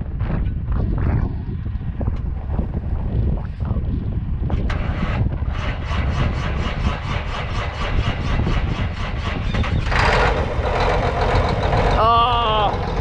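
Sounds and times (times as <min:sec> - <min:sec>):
tractor diesel engine starting: 0:04.6 - 0:13.0.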